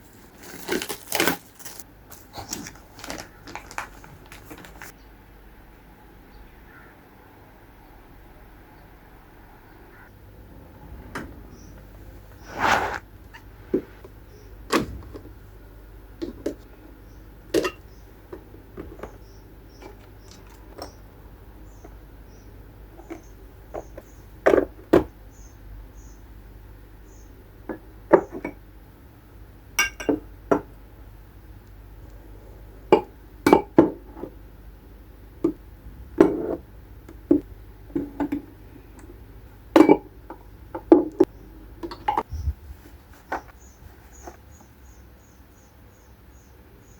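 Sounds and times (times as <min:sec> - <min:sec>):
household objects clinking: 0:00.0 - 0:04.9.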